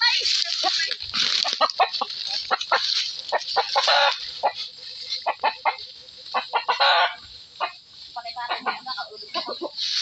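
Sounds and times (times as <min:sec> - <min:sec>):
chicken clucking: 0:00.0 - 0:10.0
chicken squawk: 0:01.6 - 0:07.8.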